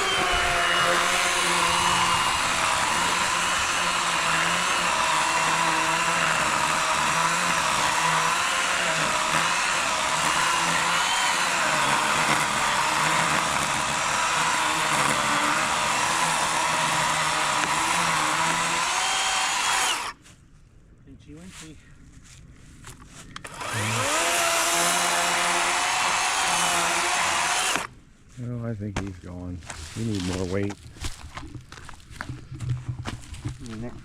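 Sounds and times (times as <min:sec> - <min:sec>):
electric chainsaw cutting log: 0:00.0 - 0:20.2, 0:23.4 - 0:27.9.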